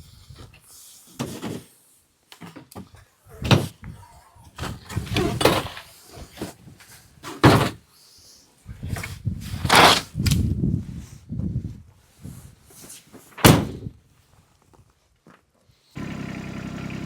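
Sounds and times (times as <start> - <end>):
door slamming: 13.4 - 13.8.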